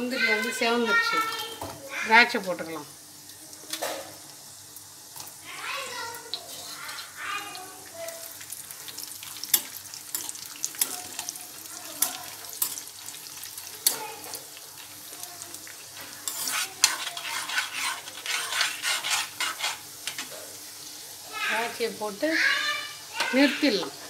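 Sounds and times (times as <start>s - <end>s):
nuts sizzling in hot fat: 0.0s - 24.0s
ladle knocking and scraping pan: 16.0s - 20.3s.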